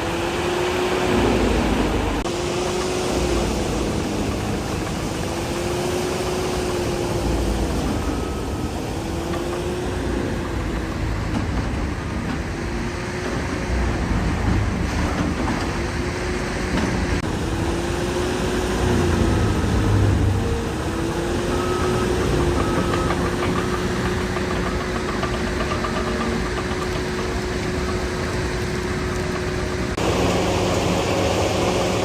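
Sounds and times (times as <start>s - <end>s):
excavator diesel engine: 0.0s - 32.0s
steady mechanical din: 16.7s - 32.0s.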